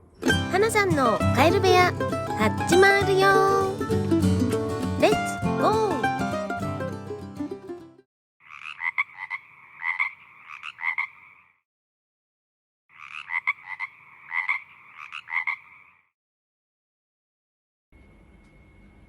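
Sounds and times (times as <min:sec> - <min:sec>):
frog croaking: 0:08.4 - 0:11.6, 0:12.9 - 0:16.1.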